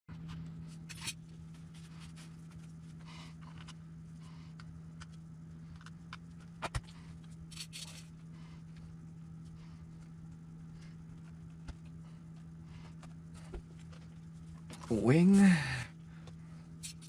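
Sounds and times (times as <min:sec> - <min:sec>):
steady low hum: 0:00.1 - 0:17.0
small parts clicking and scraping: 0:05.0 - 0:08.1, 0:16.8 - 0:17.0.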